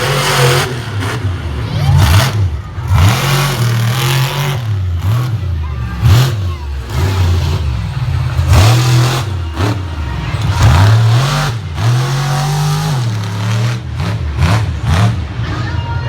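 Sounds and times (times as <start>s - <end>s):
truck engine revving hard: 0.0s - 15.5s.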